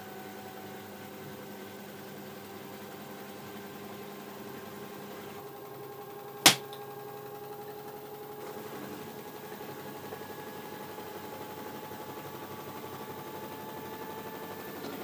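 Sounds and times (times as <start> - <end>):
washer-dryer motor humming: 0.0 - 15.0
sharp knock: 6.5 - 6.7.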